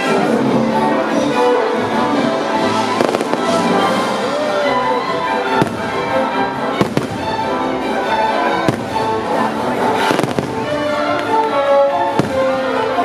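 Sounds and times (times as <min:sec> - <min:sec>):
music: 0:00.0 - 0:13.0
fireworks bursting with bangs: 0:02.8 - 0:07.6, 0:08.5 - 0:13.0.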